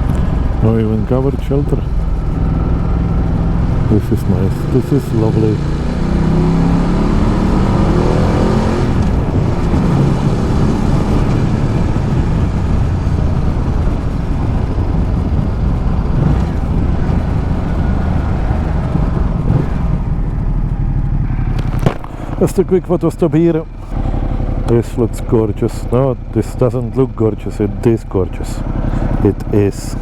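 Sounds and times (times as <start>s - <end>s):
wind noise: 0.0s - 22.5s
motorcycle engine running: 0.0s - 30.0s.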